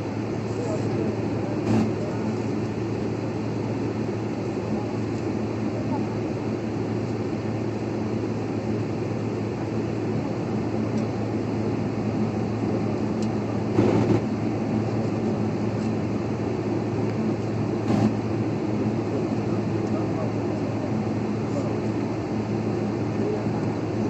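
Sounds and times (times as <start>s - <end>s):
airliner cabin engine drone: 0.0s - 24.0s
low hum: 17.0s - 19.6s.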